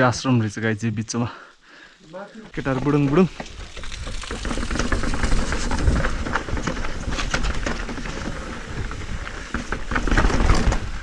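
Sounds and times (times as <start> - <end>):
bike rattling and clicking: 2.5 - 11.0.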